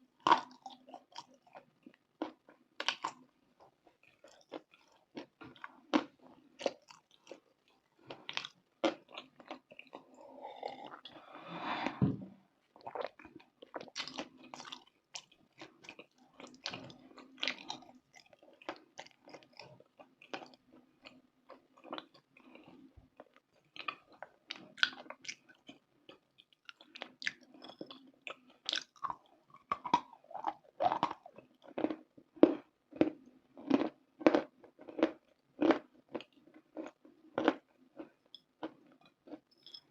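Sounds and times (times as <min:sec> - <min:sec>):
crunching and chewing snack: 0:00.1 - 0:11.2, 0:12.8 - 0:39.9.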